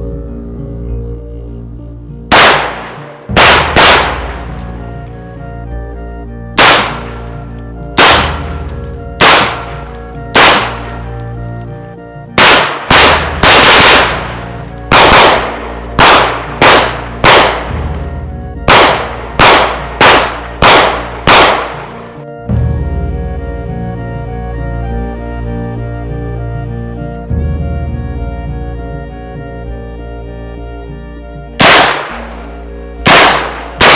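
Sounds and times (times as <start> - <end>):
background music: 0.0 - 33.9
shotgun shots: 2.3 - 5.0, 6.6 - 7.4, 8.0 - 11.2, 12.4 - 22.2, 31.6 - 32.4, 33.0 - 33.9.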